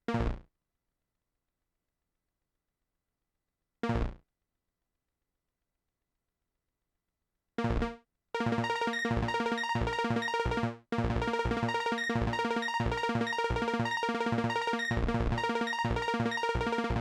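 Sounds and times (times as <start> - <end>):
looping electronic synth pattern: 7.8 - 17.0.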